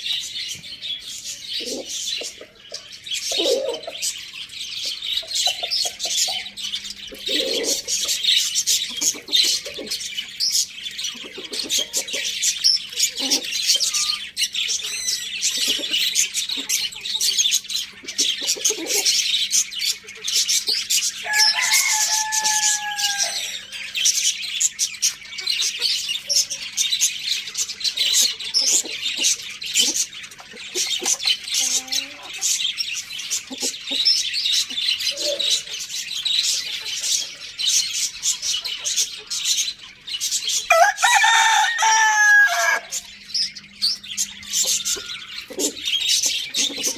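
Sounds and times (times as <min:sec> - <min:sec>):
chickens clucking: 0:00.0 - 0:46.9
small birds chirping: 0:00.0 - 0:46.9
rooster crowing: 0:21.2 - 0:23.7, 0:40.7 - 0:43.0.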